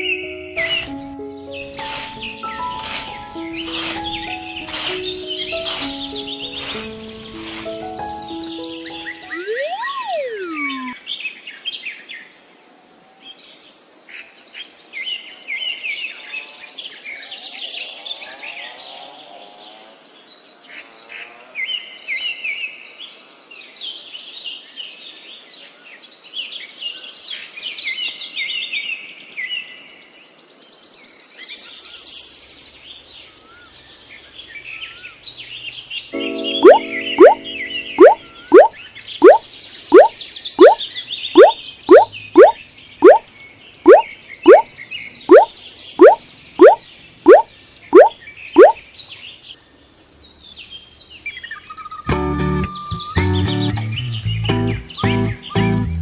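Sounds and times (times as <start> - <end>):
birds chirping and singing: 0.0 - 11.0
falling whistle-like glide: 8.8 - 11.0, 36.6 - 39.4, 40.0 - 40.8, 43.9 - 44.6.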